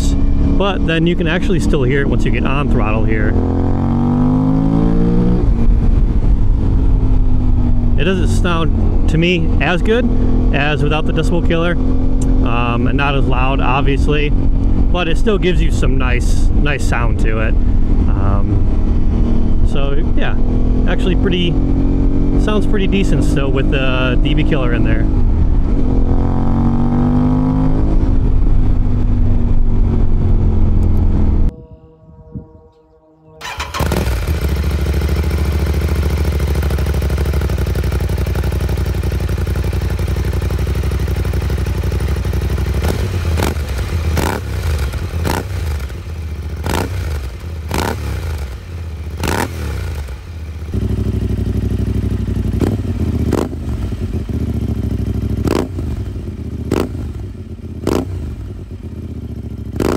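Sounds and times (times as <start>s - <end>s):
motorcycle engine revving: 0.0s - 16.9s, 17.5s - 31.6s, 33.4s - 59.9s.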